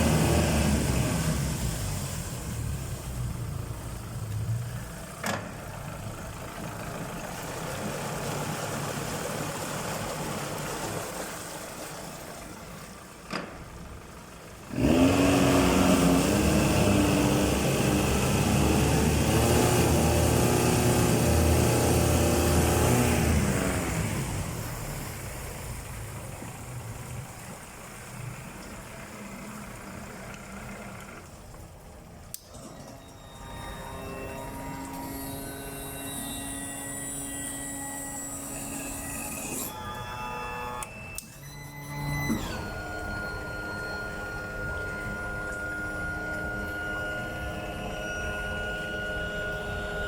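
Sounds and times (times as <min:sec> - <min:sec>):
outboard motor running and revving: 0:00.0 - 0:05.2, 0:14.6 - 0:27.4, 0:42.0 - 0:50.0.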